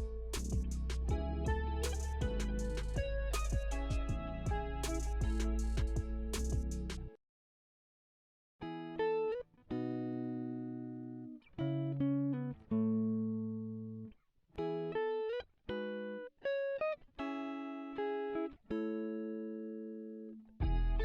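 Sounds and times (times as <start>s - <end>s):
guitar playing plucked notes: 0.0s - 7.0s, 8.6s - 21.0s.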